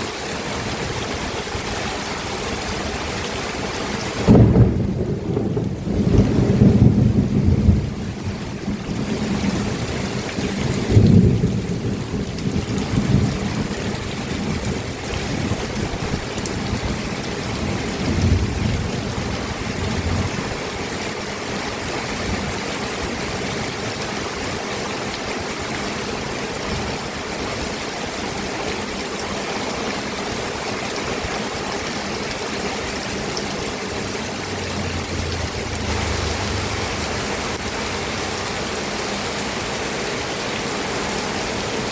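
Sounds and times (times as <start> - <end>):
steady rainfall: 0.0 - 41.9
thunder rumbles: 4.2 - 16.0, 33.2 - 39.0.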